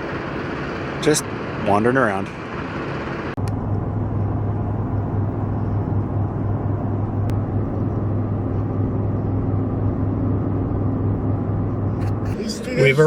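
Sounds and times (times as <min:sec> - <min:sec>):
car driving on road: 0:00.0 - 0:13.0.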